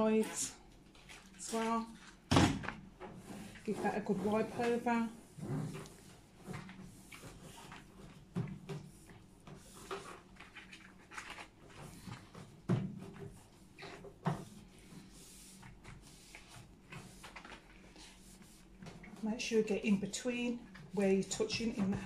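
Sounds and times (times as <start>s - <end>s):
cloth rubbing on microwave: 3.2s - 19.8s.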